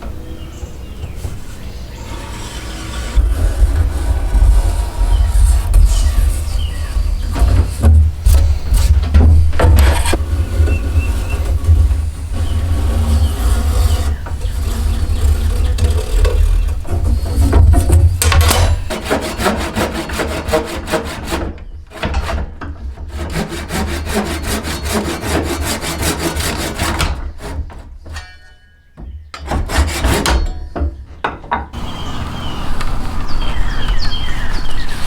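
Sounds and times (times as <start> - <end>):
tool rasping on wood: 1.3 - 27.9, 29.4 - 30.4.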